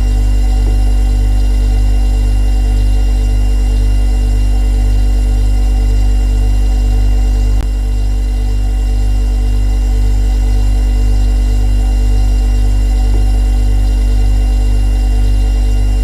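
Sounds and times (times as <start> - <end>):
refrigerator humming: 0.0 - 16.0.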